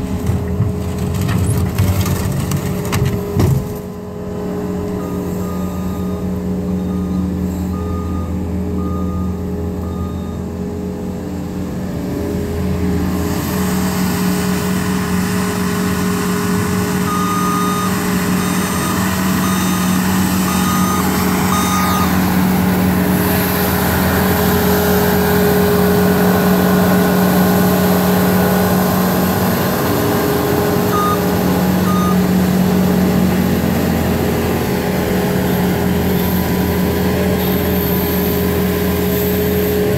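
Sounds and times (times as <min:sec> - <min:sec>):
diesel engine running under load: 0:00.0 - 0:39.9
backup alarm beeping: 0:04.9 - 0:10.5, 0:17.1 - 0:22.4, 0:30.9 - 0:32.3.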